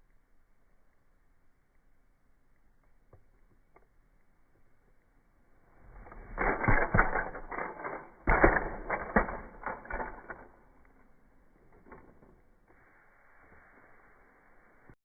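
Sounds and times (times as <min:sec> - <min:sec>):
small mechanism rattling: 0:05.8 - 0:12.6.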